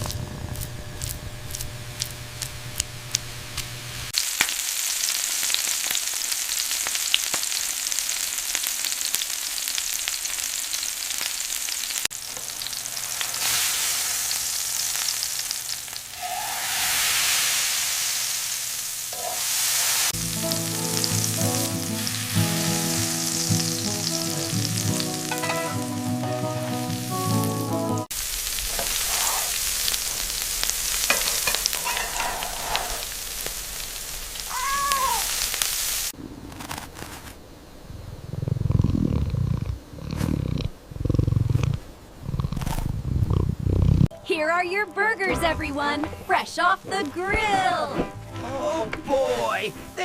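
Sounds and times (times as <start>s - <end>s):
burger patties sizzling: 0.0s - 37.2s, 44.6s - 50.0s
music with a tune: 20.2s - 28.1s.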